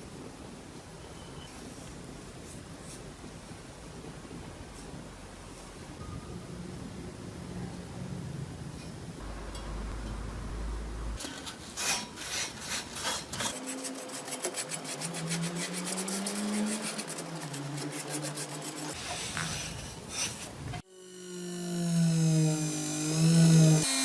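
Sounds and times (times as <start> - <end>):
file rasping on knife: 11.2 - 19.0.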